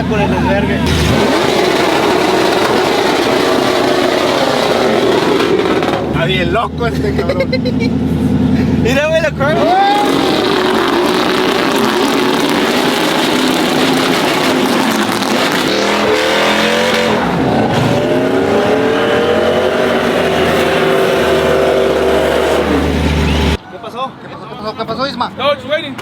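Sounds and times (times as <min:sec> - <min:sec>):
truck engine revving: 0:00.0 - 0:23.6.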